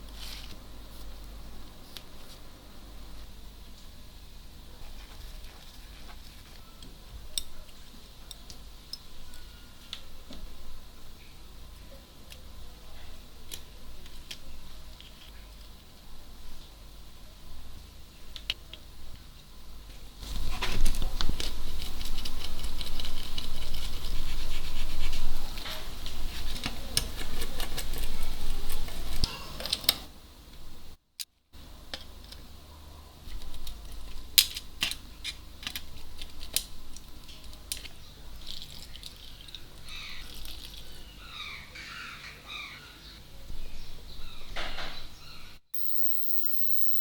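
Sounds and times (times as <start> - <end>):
rubbing on small parts: 20.2 - 29.3.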